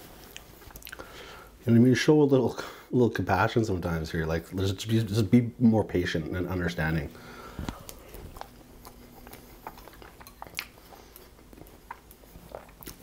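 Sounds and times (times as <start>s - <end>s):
chewing mouth sounds: 0.2s - 1.1s, 7.4s - 13.0s.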